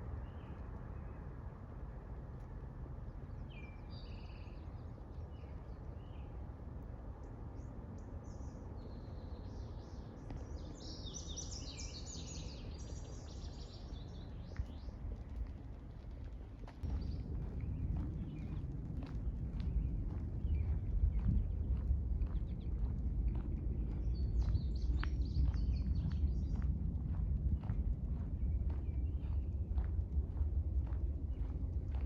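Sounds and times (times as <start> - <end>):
low outdoor rumble: 0.0 - 32.0
songbirds singing: 7.2 - 15.3, 16.4 - 29.9.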